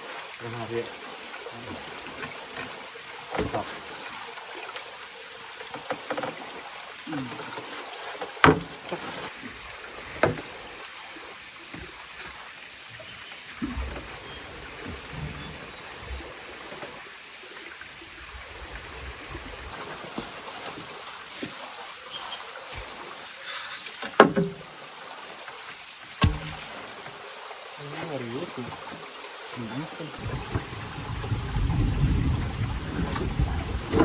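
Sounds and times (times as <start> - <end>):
rushing water: 0.0 - 34.0
sharp knocks: 26.2 - 26.7.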